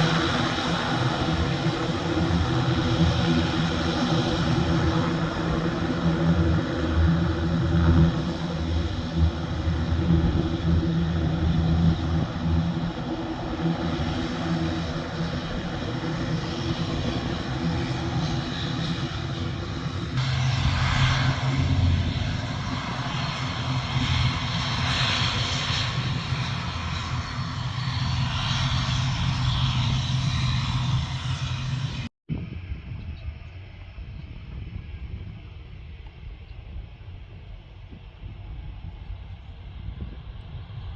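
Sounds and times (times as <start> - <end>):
jet airliner engines running: 0.0 - 40.9.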